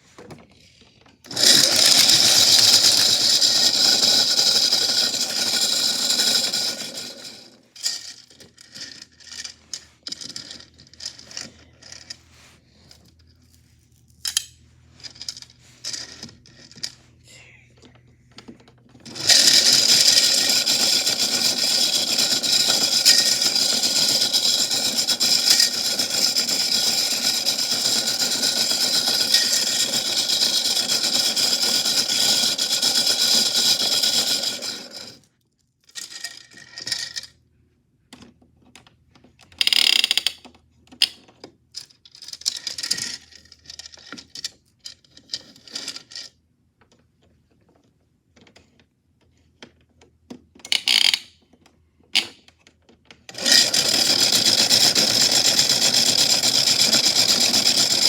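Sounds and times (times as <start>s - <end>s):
toy washing machine motor whine: 1.2s - 9.5s, 19.0s - 35.2s, 53.3s - 58.0s.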